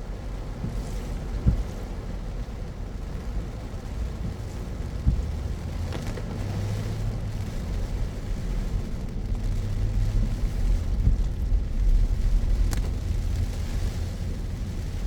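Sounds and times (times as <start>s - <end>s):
car tyres and engine rumbling: 0.0s - 15.0s
rain and spray hiss: 0.0s - 15.0s.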